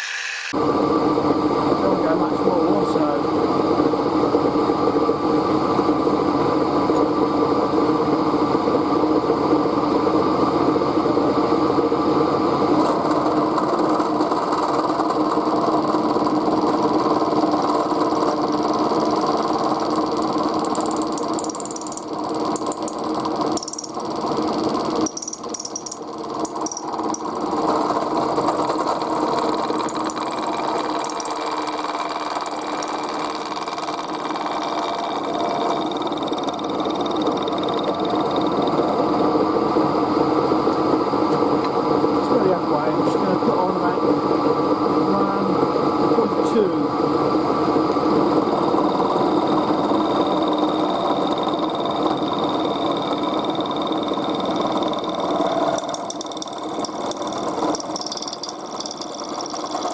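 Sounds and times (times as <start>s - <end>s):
high-pitched metal cutting noises: 0.0s - 0.6s, 20.6s - 23.0s, 48.4s - 59.9s
machine tool motor humming: 0.0s - 0.6s, 12.8s - 39.3s, 47.9s - 59.9s.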